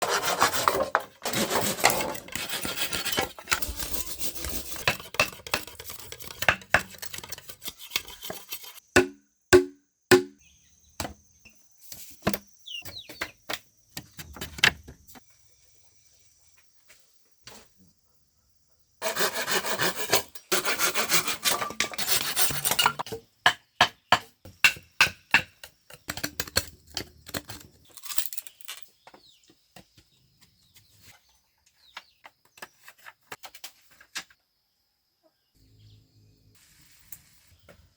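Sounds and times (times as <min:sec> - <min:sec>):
rasping sawing on bamboo: 0:00.0 - 0:06.4, 0:19.0 - 0:22.8.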